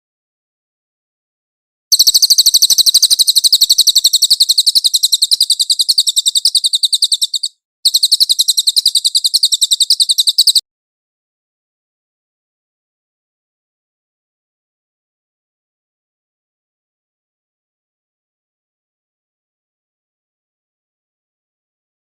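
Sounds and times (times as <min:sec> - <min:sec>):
bird singing rapid trills: 0:01.9 - 0:10.6.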